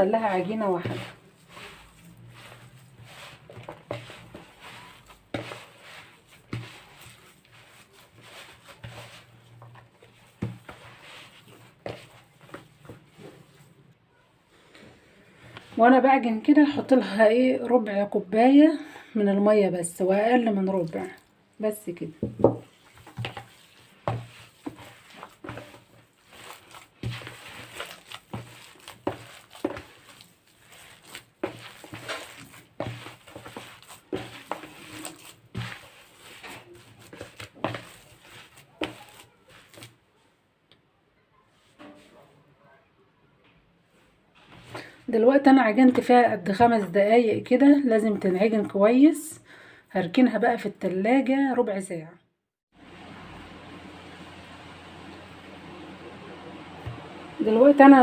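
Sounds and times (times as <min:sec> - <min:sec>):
hands kneading meat mixture: 0:00.0 - 0:14.0, 0:19.5 - 0:40.1, 0:44.6 - 0:49.3, 0:52.8 - 0:58.0.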